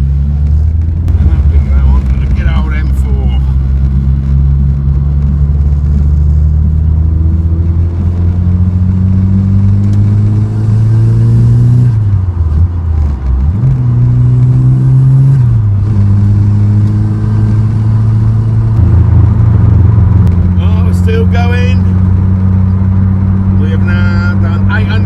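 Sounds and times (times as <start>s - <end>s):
turbocharged engine revving: 0.0s - 25.0s.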